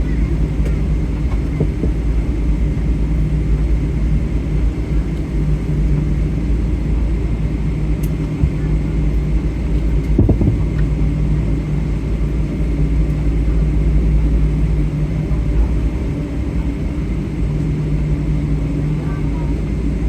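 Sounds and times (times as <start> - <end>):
airliner cabin rumble: 0.0 - 20.0
low thump: 10.2 - 10.9.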